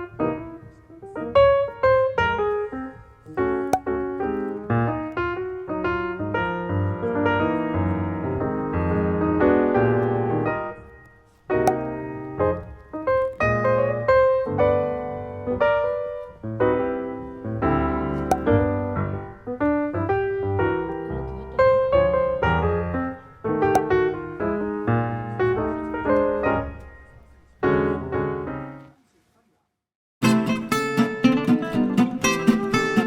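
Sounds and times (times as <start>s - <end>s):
light piano melody: 0.0s - 28.9s.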